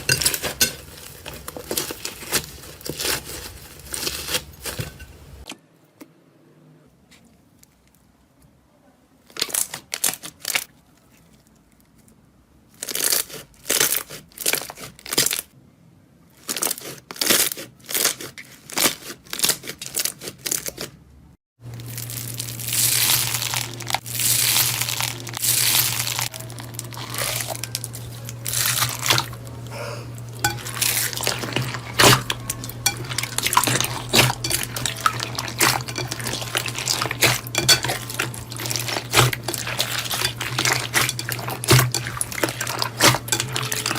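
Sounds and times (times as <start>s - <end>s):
low hum: 21.6s - 43.9s.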